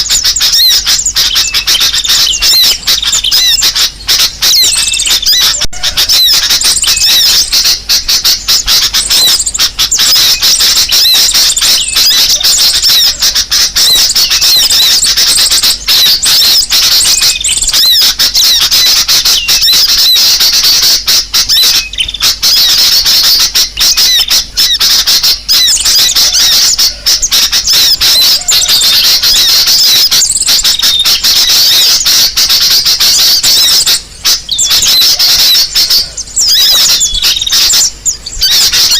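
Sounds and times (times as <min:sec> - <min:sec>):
shrill songbird chirps: 0:00.0 - 0:38.9.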